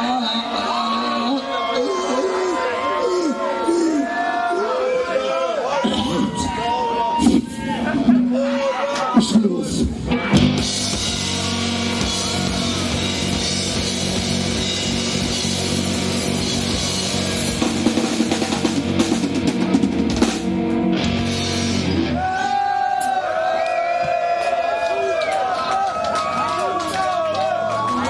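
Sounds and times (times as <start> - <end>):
drums pounding: 9.8 - 23.2.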